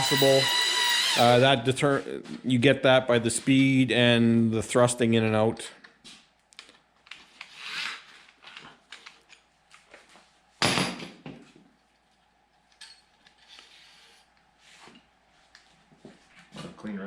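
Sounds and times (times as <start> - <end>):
metal tools clinking: 0.0 - 1.4.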